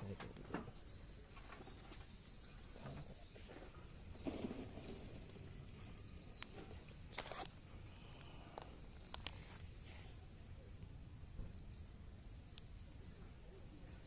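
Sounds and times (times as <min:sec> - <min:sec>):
wood fire crackling: 0:00.0 - 0:14.0
sharp pops of fire: 0:04.0 - 0:09.8.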